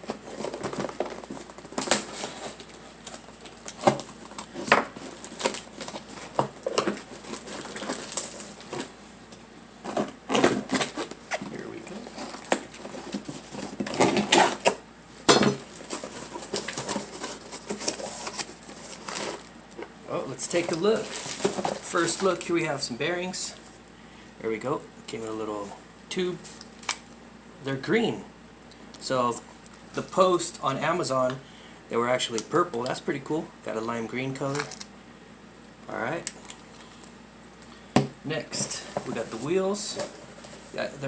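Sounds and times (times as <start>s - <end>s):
cardboard and plastic packaging tearing: 0.1s - 8.9s, 9.9s - 14.8s, 15.4s - 19.5s, 20.4s - 22.4s.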